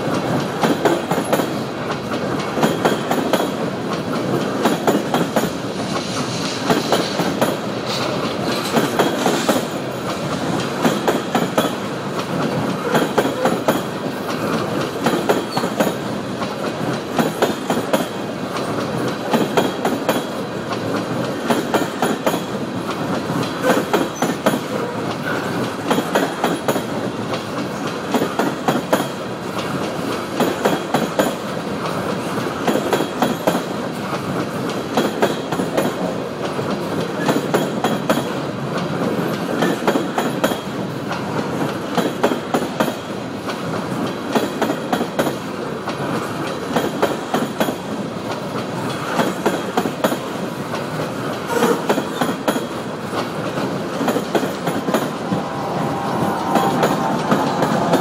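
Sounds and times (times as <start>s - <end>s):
rumbling clatter of train: 0.0s - 58.0s.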